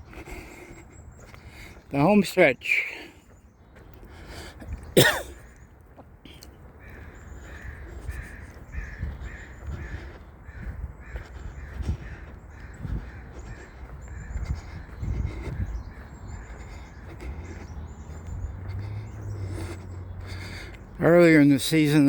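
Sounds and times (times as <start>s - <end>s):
footsteps on a trail: 0.0s - 22.0s
crow cawing: 6.8s - 21.0s.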